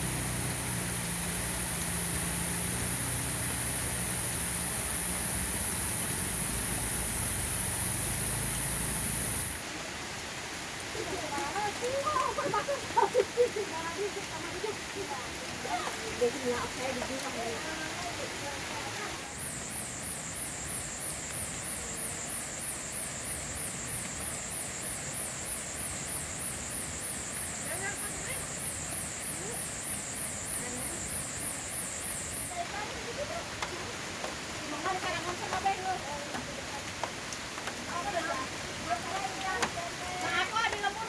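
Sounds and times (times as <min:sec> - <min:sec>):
high-pitched whine: 0:00.0 - 0:09.6
insect pulsing trill: 0:00.0 - 0:09.6
low engine hum: 0:00.0 - 0:09.6
rain hiss: 0:00.0 - 0:41.0.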